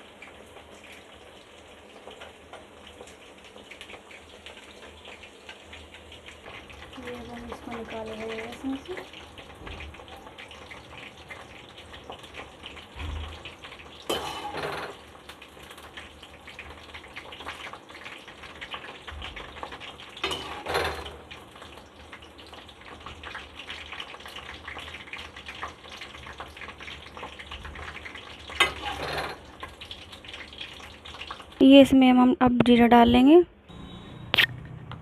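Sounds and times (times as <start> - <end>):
okra sizzling in hot oil: 0.0 - 31.7
metal spoon scraping pan: 14.1 - 15.0, 20.2 - 21.1, 28.6 - 29.5.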